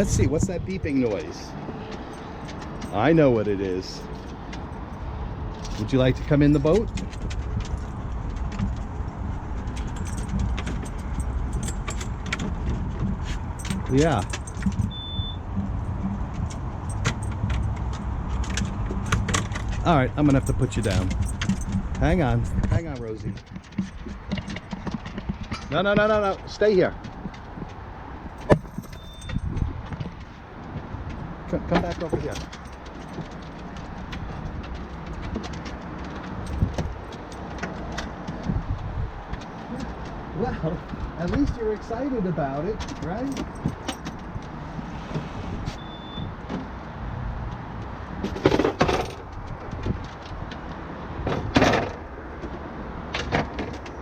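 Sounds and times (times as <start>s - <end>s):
metallic jingling and clinking: 1.2s - 25.8s, 27.3s - 30.2s, 31.4s - 38.5s, 42.8s - 44.7s.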